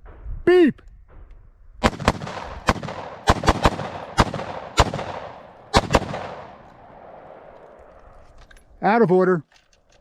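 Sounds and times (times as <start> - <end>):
rifle shots echoing: 1.8 - 7.8.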